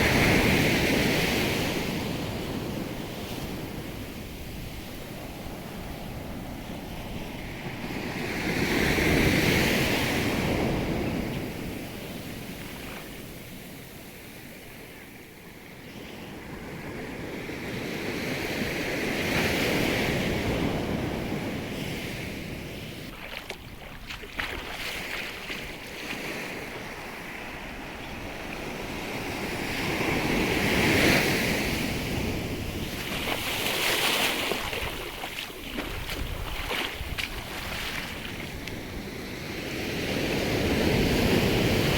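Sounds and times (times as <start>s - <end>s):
sea surf breaking on shore: 0.0s - 15.2s, 16.1s - 41.9s
wind buffeting microphone: 16.4s - 39.3s.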